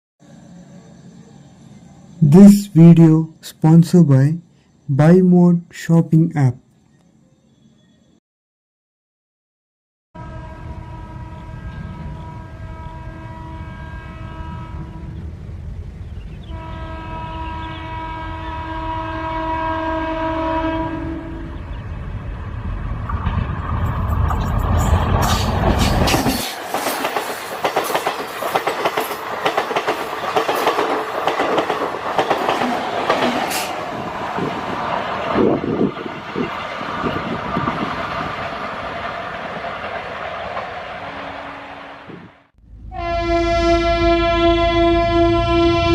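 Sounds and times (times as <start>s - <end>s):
train horn blasts: 10.2s - 15.2s, 16.5s - 21.8s, 41.0s - 45.9s
train rumbling past: 10.2s - 45.9s
wheels clacking over rail joints: 23.1s - 41.1s.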